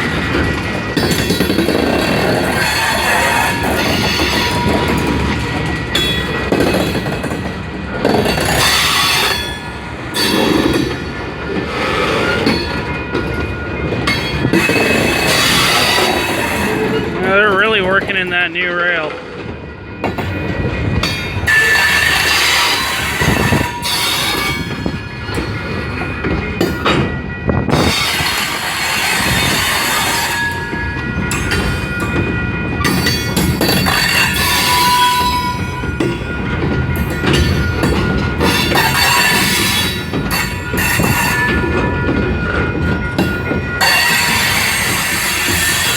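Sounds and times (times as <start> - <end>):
train wheels clattering on rails: 0.0 - 45.9
high wheel squeal: 8.2 - 11.1, 21.0 - 26.0, 36.9 - 45.9.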